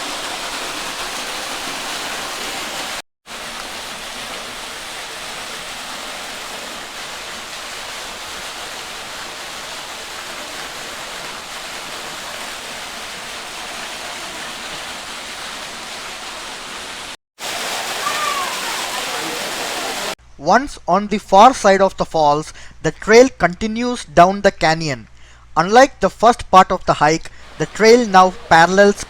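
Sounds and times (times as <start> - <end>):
small waterfall rushing: 0.0 - 20.2, 27.4 - 29.0.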